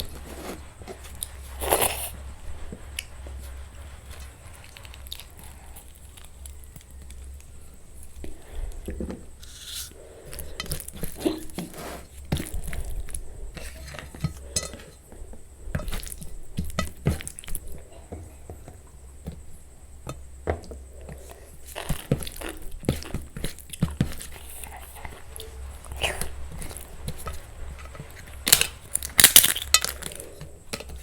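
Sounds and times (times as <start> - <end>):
steady low hum: 0.0 - 31.0
dishes and utensils clinking: 13.5 - 17.7, 22.8 - 31.0.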